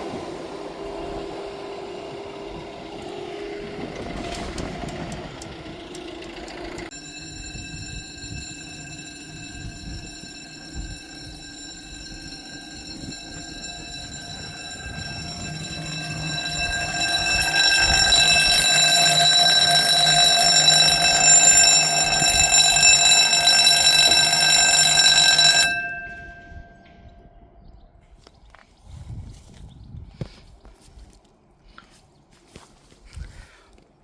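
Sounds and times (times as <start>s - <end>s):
level crossing warning alarm: 0.1s - 27.1s.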